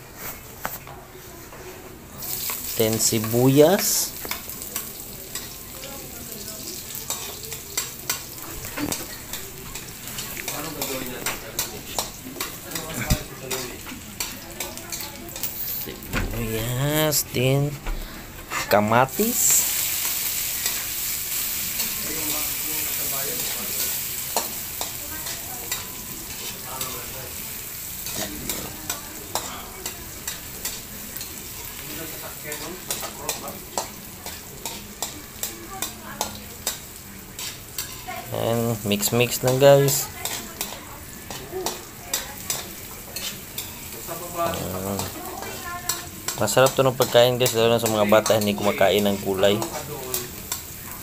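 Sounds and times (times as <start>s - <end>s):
food sizzling in a wok: 2.1s - 51.0s
metal spatula scraping a pan: 28.0s - 38.2s.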